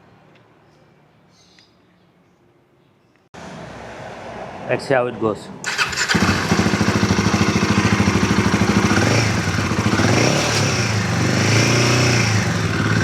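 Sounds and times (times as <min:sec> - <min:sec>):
motorcycle engine idling: 0:05.7 - 0:13.0.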